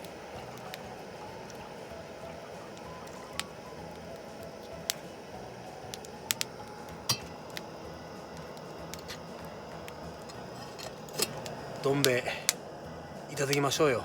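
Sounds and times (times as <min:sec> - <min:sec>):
low background noise: 0:00.0 - 0:14.0.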